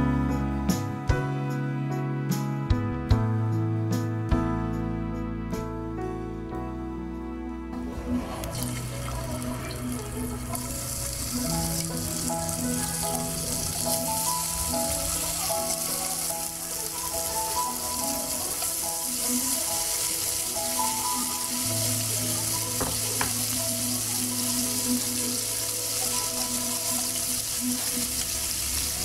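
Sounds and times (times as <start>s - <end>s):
soft melodic background music: 0.0s - 29.0s
squid sizzling in hot oil: 8.4s - 29.0s.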